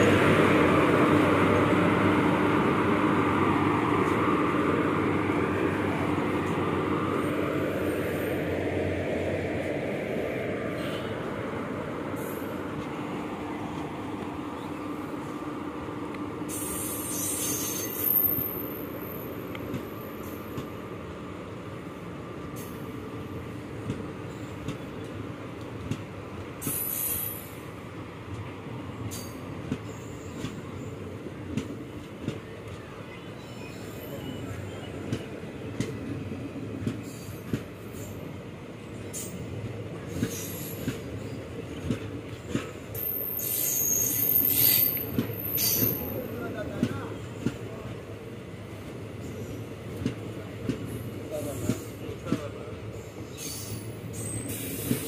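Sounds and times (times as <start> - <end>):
train wheels rumbling on rails: 0.0 - 55.0
high-pitched wheel squeal: 43.0 - 46.1.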